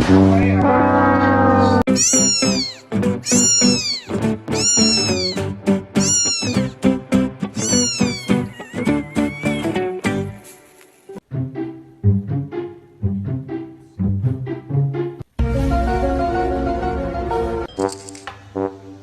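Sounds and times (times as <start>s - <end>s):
cat meowing: 1.8s - 6.8s, 7.6s - 9.9s.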